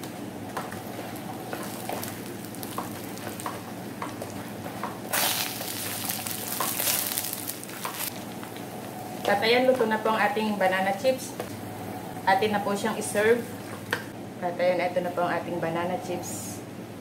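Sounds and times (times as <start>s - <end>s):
banana slices sizzling in a pan: 5.1s - 8.2s.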